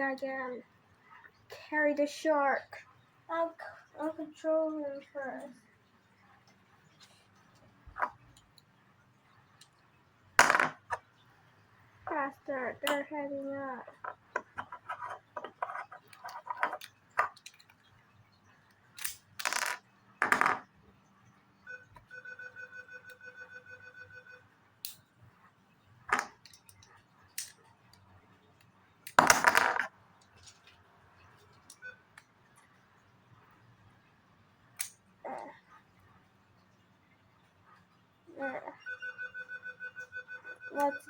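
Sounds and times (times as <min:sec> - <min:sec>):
plastic toy pieces clattering: 0:13.8 - 0:17.9, 0:26.1 - 0:27.6, 0:29.1 - 0:30.8
trilling electronic beep: 0:38.8 - 0:41.0.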